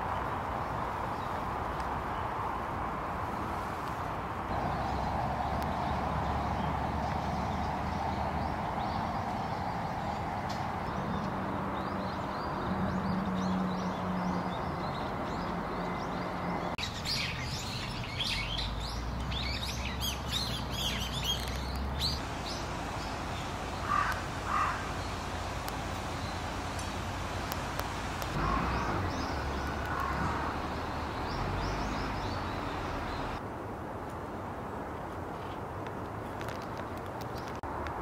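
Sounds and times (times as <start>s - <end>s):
outdoor background hiss: 0.0s - 15.8s, 16.6s - 38.0s
birds chirping: 4.5s - 33.4s.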